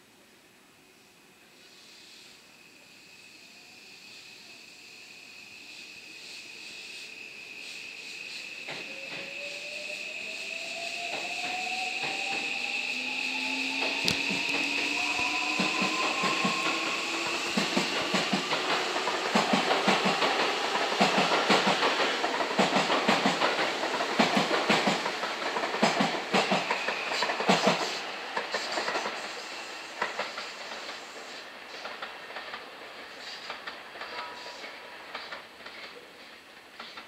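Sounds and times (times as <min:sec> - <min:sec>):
faint train motor whine: 0:00.5 - 0:37.0
train wheels clacking over rail joints: 0:13.8 - 0:37.0.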